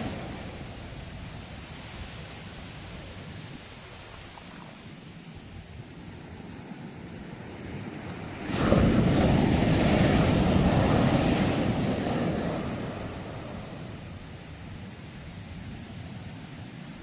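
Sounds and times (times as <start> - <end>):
ocean wave breaking: 0.0 - 5.1, 6.2 - 14.2.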